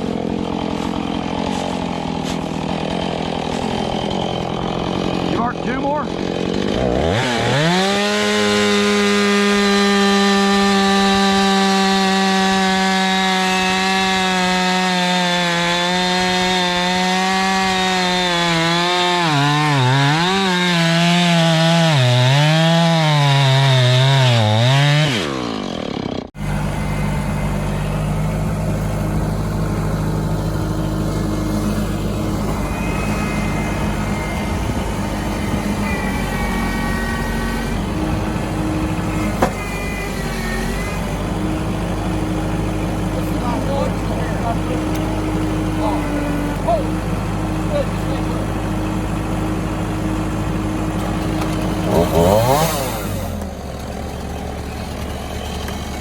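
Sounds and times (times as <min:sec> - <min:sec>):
chainsaw cutting log: 0:00.0 - 0:56.0
low steady engine running: 0:26.4 - 0:35.8.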